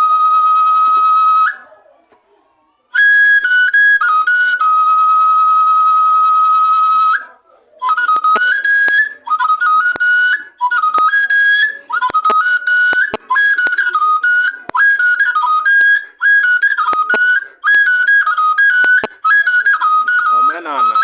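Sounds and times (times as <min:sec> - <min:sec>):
wooden flute playing high notes: 0:00.0 - 0:01.8, 0:02.9 - 0:21.0
sharp clicks: 0:08.0 - 0:09.1, 0:12.0 - 0:13.8, 0:16.8 - 0:17.9, 0:18.7 - 0:19.2.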